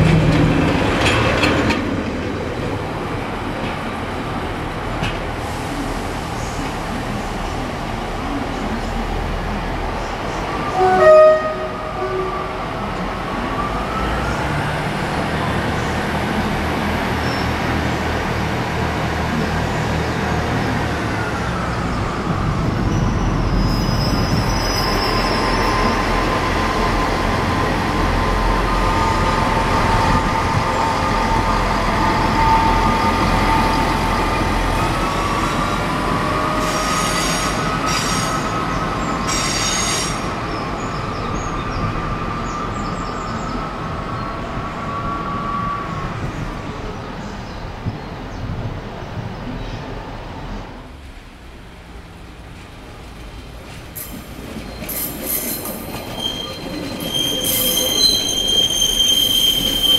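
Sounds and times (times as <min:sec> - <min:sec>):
wheels squealing on rails: 0:21.2 - 0:46.8, 0:53.9 - 0:59.9
high-pitched wheel squeals: 0:54.6 - 0:59.9.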